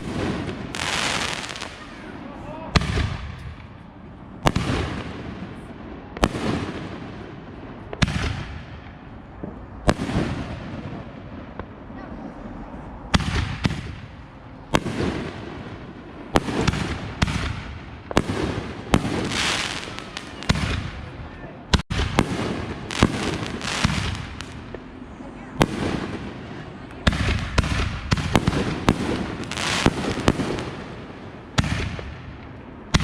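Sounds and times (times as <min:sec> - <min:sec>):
fireworks bangs with rumble: 0:02.7 - 0:11.8, 0:13.1 - 0:25.0, 0:25.6 - 0:33.0.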